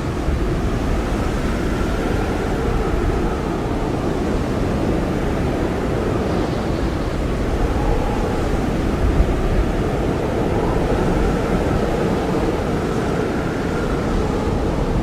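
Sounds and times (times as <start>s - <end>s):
blizzard wind roaring and howling: 0.0s - 15.0s.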